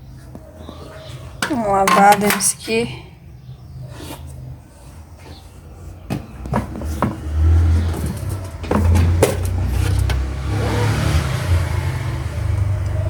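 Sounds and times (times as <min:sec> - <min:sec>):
hard parts knocking and clattering: 0:01.4 - 0:02.9, 0:06.1 - 0:10.3.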